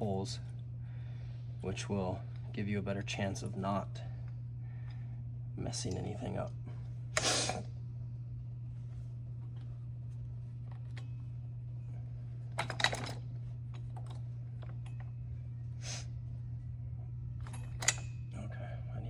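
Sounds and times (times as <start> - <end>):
steady low hum: 0.0 - 19.0
metal clicks of bolts and tools: 17.5 - 18.1.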